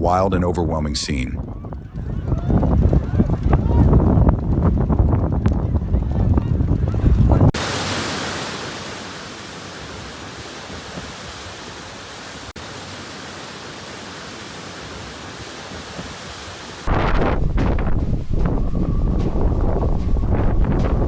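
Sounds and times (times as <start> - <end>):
steady rushing hiss: 7.6 - 16.9.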